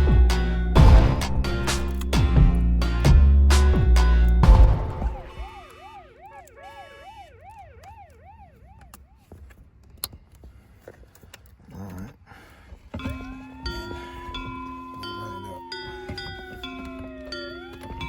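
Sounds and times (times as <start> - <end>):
music: 0.0 - 5.4, 13.2 - 18.0
rising held tone: 0.0 - 9.0, 13.1 - 18.0
siren yelping: 4.0 - 9.6, 13.0 - 18.0.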